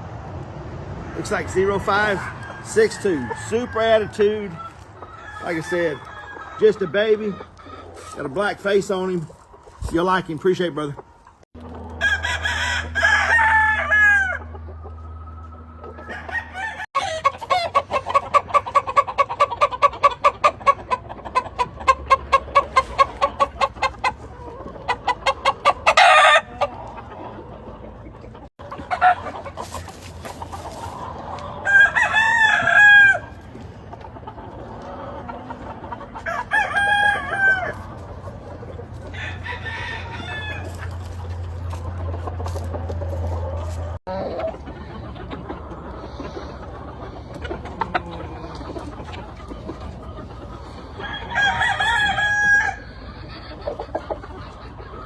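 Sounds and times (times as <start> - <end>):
roosters crowing: 0.9 - 9.8, 11.0 - 54.1
rapid clucking: 17.1 - 31.6, 40.7 - 51.2.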